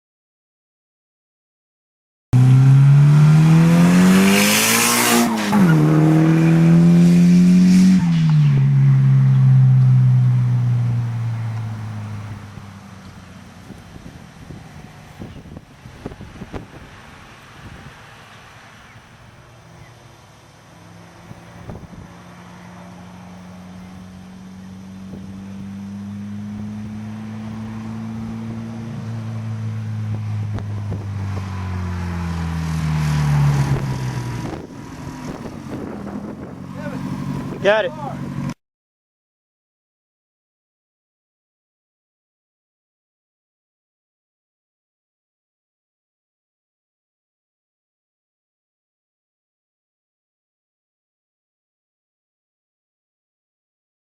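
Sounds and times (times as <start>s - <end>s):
turbocharged car engine revving: 2.4s - 15.2s, 20.4s - 38.6s.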